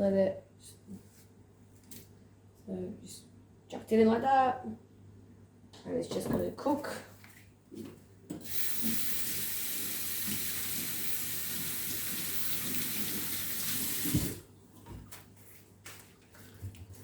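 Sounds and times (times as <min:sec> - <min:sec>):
kitchen tap running into sink: 0:08.4 - 0:14.5
tap turned off with knock: 0:14.0 - 0:15.1.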